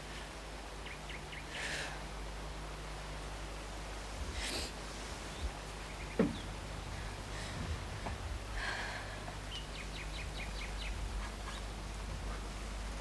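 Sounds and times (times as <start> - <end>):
low steady hum: 0.0 - 13.0
songbird chirping: 0.3 - 4.0, 5.2 - 8.2, 9.2 - 12.6.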